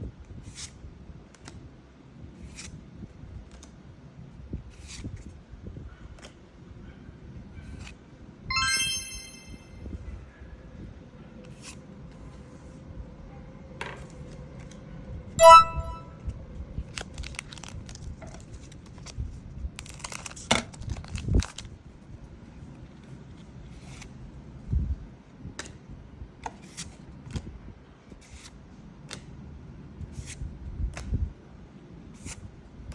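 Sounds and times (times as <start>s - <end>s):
bright chimes: 8.5s - 9.8s, 15.4s - 16.1s.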